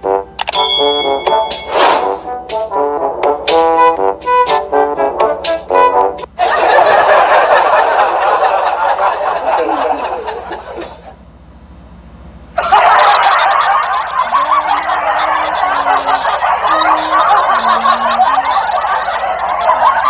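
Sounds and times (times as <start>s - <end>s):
short brass notes: 0.0s - 6.3s
loud laughter: 6.3s - 11.2s, 12.6s - 20.0s.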